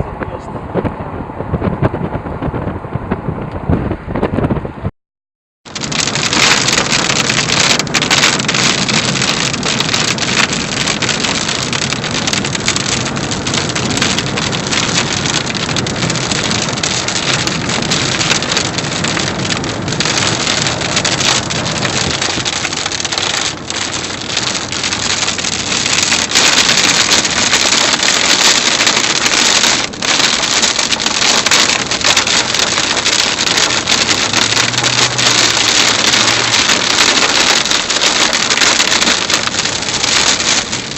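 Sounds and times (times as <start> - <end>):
wind on microphone: 0.0 - 4.9, 5.7 - 40.9
heavy rain: 5.7 - 40.9.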